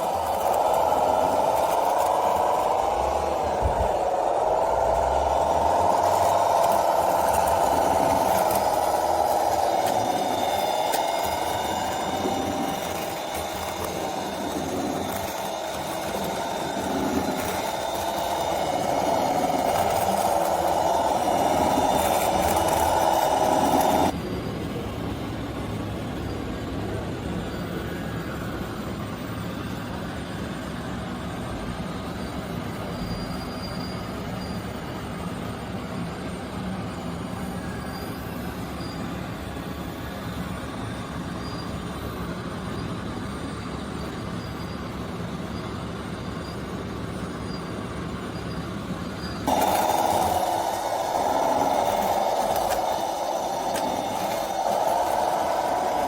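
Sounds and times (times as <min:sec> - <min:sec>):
small motors rattling and rumbling: 0:00.0 - 0:27.5, 0:29.7 - 0:56.0.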